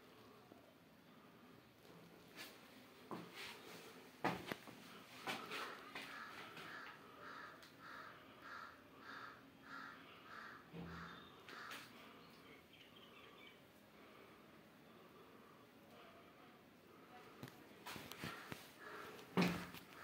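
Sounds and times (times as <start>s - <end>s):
faint bird calls: 5.4s - 15.4s, 18.1s - 20.0s.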